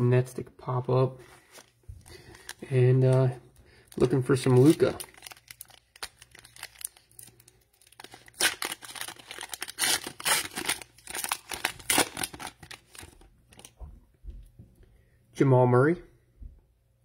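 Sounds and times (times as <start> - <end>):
cellophane wrapper tearing and crinkling: 3.9 - 13.7.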